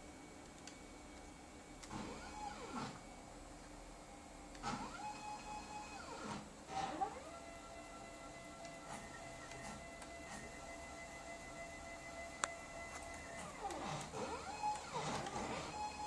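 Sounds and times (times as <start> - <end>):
stepper motors whining: 4.6 - 16.0.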